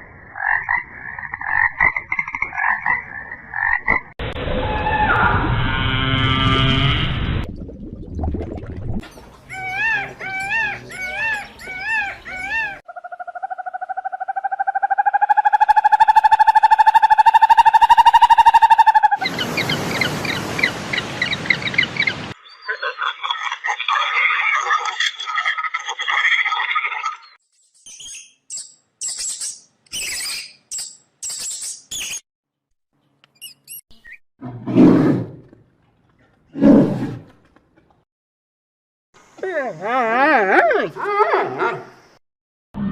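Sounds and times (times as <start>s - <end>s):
large animal roaring: 34.4s - 35.5s.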